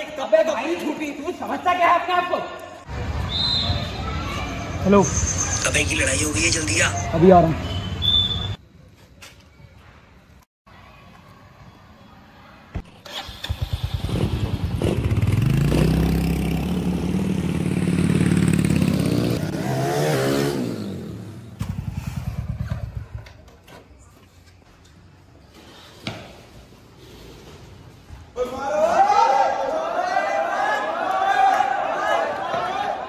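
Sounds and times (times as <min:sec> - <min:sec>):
motorcycle engine revving: 0:13.0 - 0:23.4.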